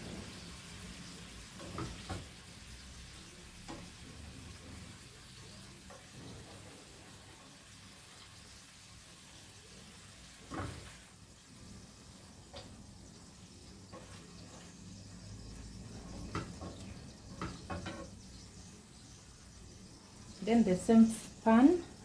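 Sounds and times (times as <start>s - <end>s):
liver sizzling in a frying pan: 0.0s - 22.0s.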